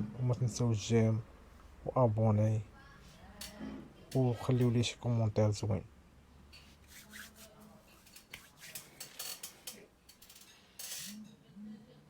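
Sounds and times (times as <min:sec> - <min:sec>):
rustling of things handled: 0:06.5 - 0:11.2.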